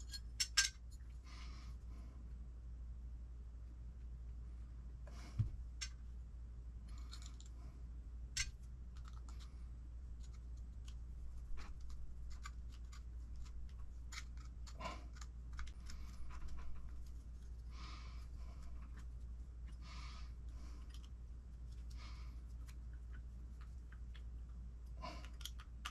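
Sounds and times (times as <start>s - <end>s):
small parts and tools clinking: 0.0s - 1.1s, 6.9s - 7.6s, 8.4s - 9.5s.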